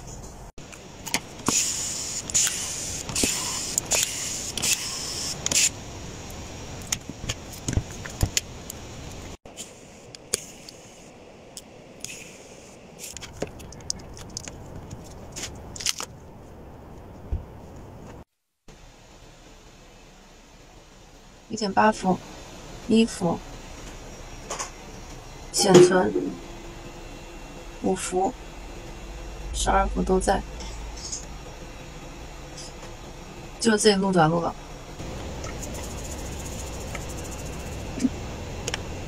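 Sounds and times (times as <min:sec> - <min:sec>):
high scraping and hiss: 0:01.2 - 0:08.2, 0:34.7 - 0:39.0.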